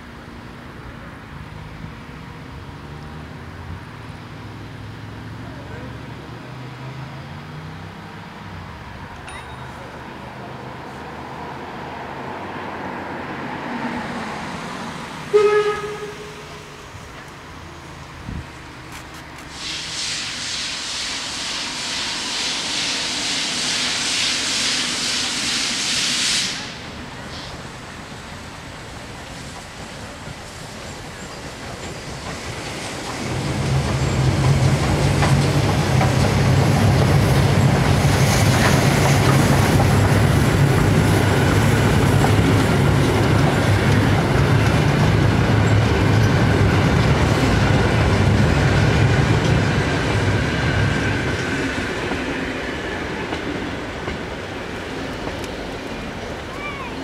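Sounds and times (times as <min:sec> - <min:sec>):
loud hiss: 0:19.3 - 0:33.6
wheels clattering over rails: 0:31.1 - 0:56.6.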